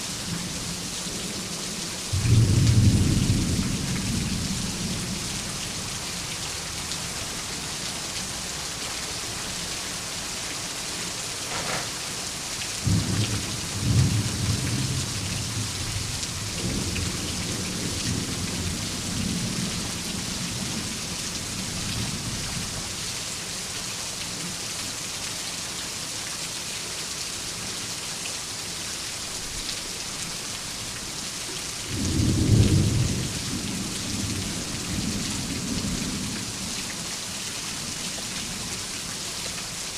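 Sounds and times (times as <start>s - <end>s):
heavy rain hissing: 0.0s - 23.9s.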